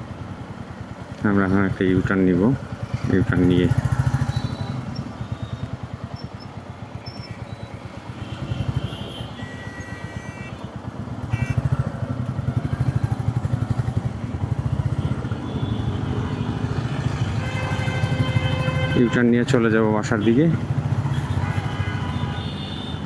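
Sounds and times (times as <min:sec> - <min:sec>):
motorcycle engine running: 0:02.6 - 0:09.4, 0:10.0 - 0:19.0, 0:20.6 - 0:23.0.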